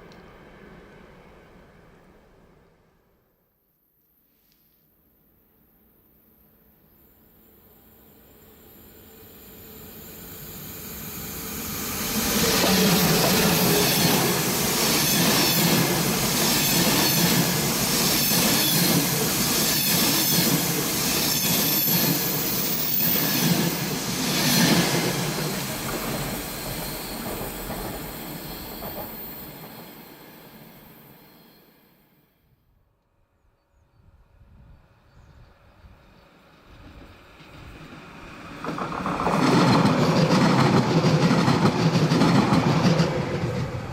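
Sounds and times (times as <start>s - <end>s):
train wheel clatter: 12.1s - 30.2s, 38.5s - 43.9s
high wheel squeal: 25.4s - 32.1s.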